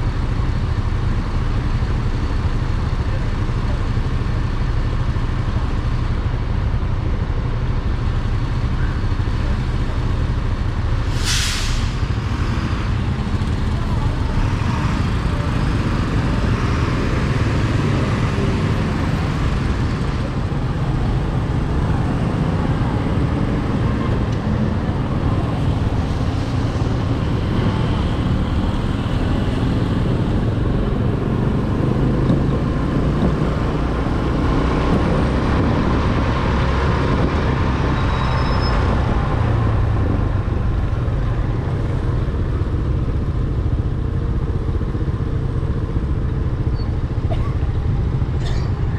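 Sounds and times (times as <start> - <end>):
surrounding traffic: 0.0 - 48.9
wind rush: 18.9 - 38.1.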